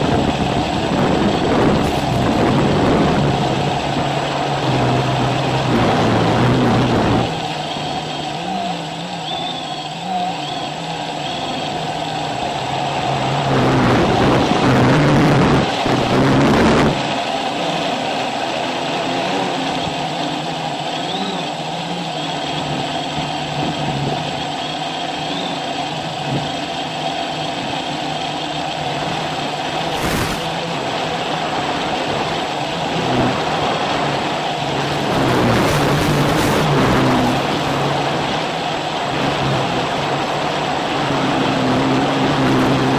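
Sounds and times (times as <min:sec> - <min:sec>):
loud rushing noise: 0:00.0 - 0:08.2, 0:11.0 - 0:21.2, 0:28.9 - 0:42.9
quadcopter propellers humming: 0:00.0 - 0:42.9.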